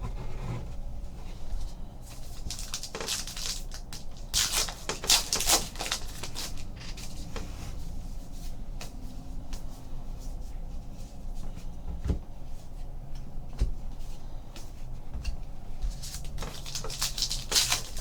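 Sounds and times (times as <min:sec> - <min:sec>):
foil wrappers tearing and crinkling: 0:02.2 - 0:07.1, 0:15.9 - 0:18.0.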